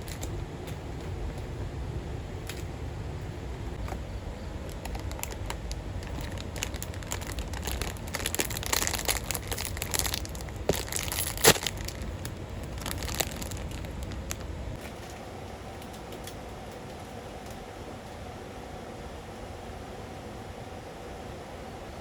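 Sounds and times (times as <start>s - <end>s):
crinkling and crackling: 0.0s - 1.6s, 2.4s - 18.2s
low background rumble: 0.0s - 22.0s.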